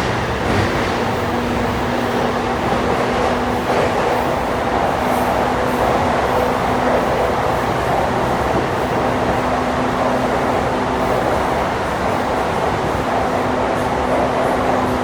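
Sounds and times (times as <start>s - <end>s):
electric train hum: 0.0s - 15.0s
train wheels rumbling: 0.0s - 15.0s.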